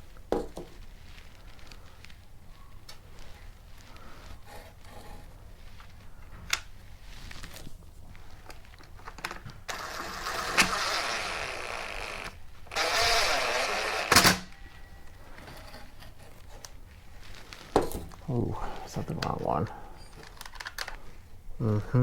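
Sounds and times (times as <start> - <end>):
parts scraping and rubbing: 3.0 - 21.0.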